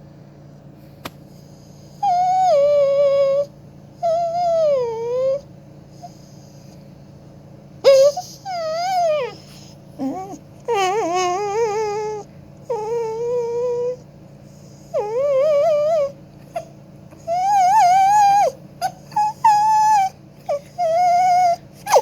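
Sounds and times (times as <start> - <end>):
dog howling: 2.0 - 5.4, 7.8 - 14.0, 14.8 - 22.0.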